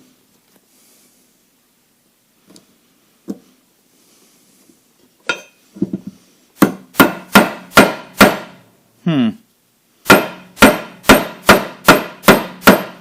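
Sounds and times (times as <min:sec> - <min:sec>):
hammer striking steel: 0:05.3 - 0:05.6, 0:06.6 - 0:08.6, 0:10.1 - 0:13.0.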